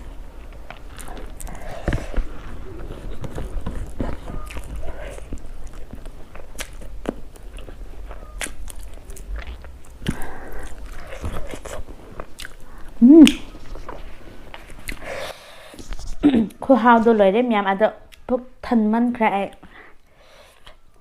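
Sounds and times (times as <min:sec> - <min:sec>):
person chewing food: 0:00.0 - 0:16.6
mouth clicks and smacks: 0:02.9 - 0:13.9
person humming: 0:13.0 - 0:13.5.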